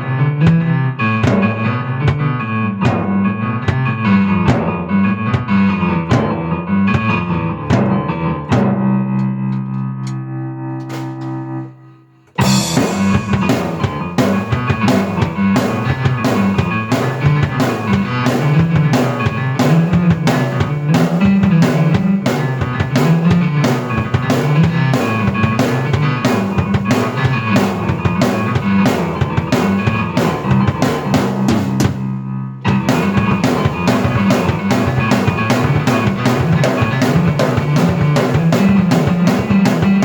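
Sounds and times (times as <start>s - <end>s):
drum kit beat: 0.4s - 9.0s, 10.8s - 11.7s, 12.3s - 40.0s
low keyboard line: 9.4s - 40.0s.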